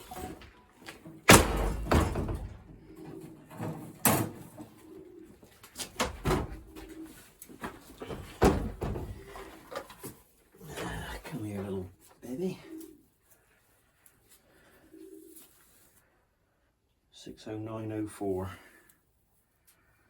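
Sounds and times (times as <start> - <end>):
sharp knocks and thuds: 1.2 - 2.9, 6.0 - 6.9, 7.6 - 9.4
pigeons cooing: 1.3 - 13.2, 14.5 - 15.8.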